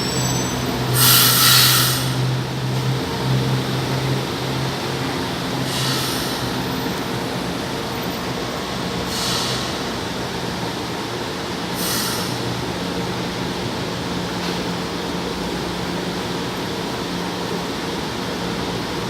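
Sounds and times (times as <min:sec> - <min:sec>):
train rumble and hum: 0:00.0 - 0:19.0
short hissing sounds: 0:11.8 - 0:12.3.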